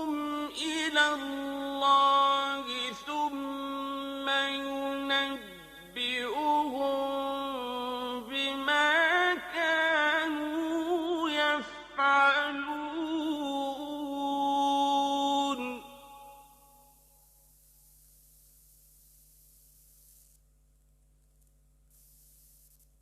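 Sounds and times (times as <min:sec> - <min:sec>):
man chanting melodic recitation: 0:00.0 - 0:16.4.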